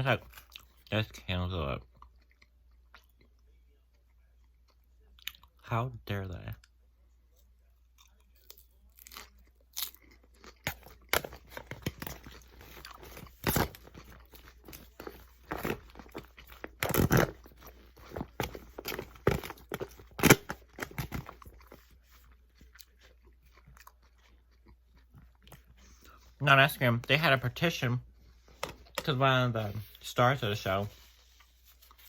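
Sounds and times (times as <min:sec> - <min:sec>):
person crunching and chewing: 0:07.8 - 0:26.3.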